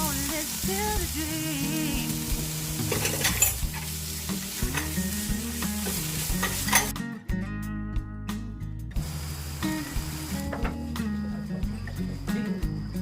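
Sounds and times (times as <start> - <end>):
food sizzling in a pan: 0.0 - 7.0, 9.0 - 13.0
utensil scraping a pan: 2.8 - 3.9.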